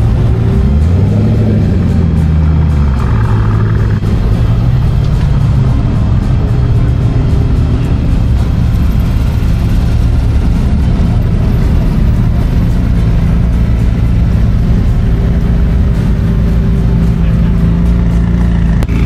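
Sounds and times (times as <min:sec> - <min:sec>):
car engine running: 0:00.0 - 0:19.0
music: 0:00.0 - 0:19.0.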